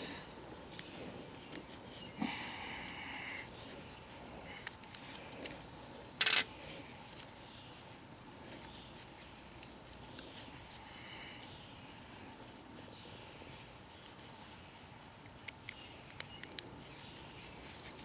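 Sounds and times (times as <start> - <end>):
light clicks and scrapes of parts: 4.6 - 7.5, 8.5 - 10.8.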